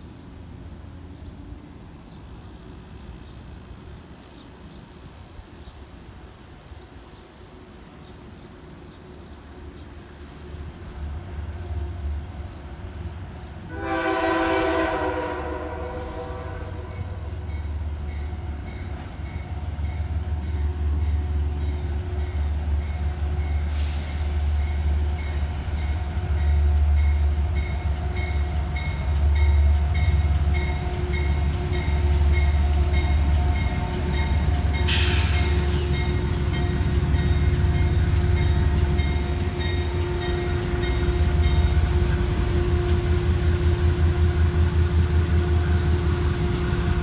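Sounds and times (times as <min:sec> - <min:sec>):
diesel locomotive rumble: 0:00.0 - 0:47.0
train horn blast: 0:13.6 - 0:17.4, 0:34.4 - 0:36.6, 0:38.0 - 0:47.0.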